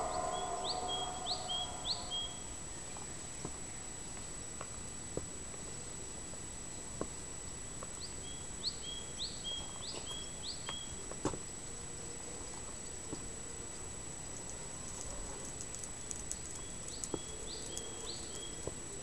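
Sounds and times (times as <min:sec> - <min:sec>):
small bird singing high notes: 0:00.0 - 0:02.4
thin high whine: 0:00.0 - 0:02.6
outdoor background noise: 0:00.0 - 0:19.0.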